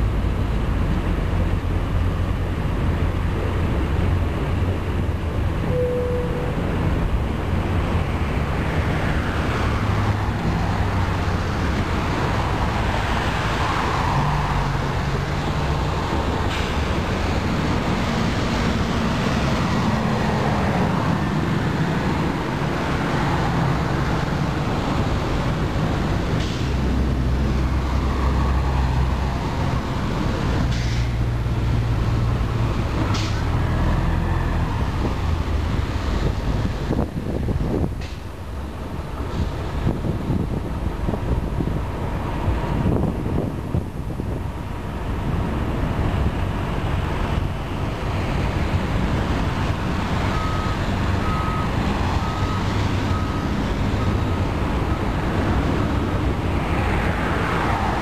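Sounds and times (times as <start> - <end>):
train wheels rumbling on track: 0.0 - 58.0.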